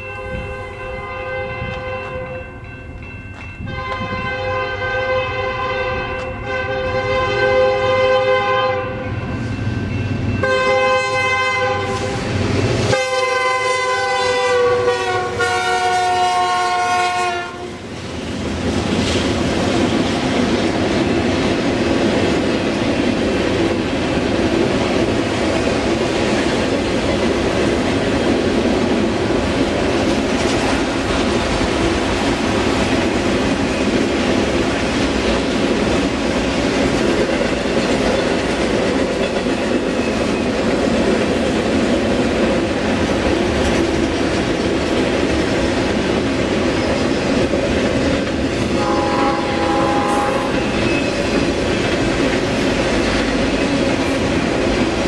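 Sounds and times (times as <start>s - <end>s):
locomotive air horn blasts: 0.0s - 2.6s, 3.7s - 9.1s, 10.4s - 17.8s, 48.7s - 50.8s
freight cars rolling clickety-clack: 17.9s - 55.0s.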